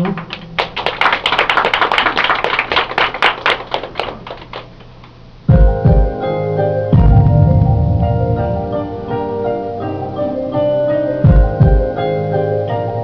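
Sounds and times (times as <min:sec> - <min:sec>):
audience clapping: 0:00.0 - 0:05.1
keyboard piano notes: 0:05.6 - 0:13.0
deep bass notes: 0:06.9 - 0:09.5.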